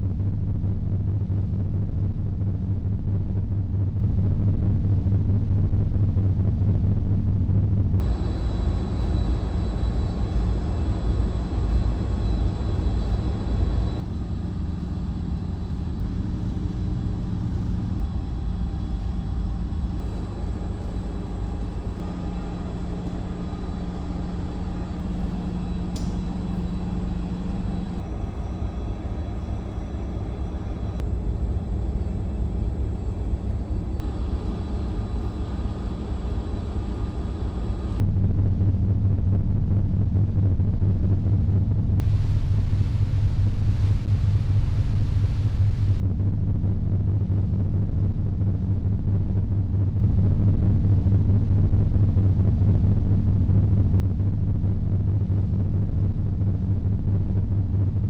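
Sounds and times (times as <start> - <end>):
ship engines droning: 8.0 - 38.0, 42.0 - 46.0
faint high whine: 8.0 - 38.1, 42.0 - 46.0.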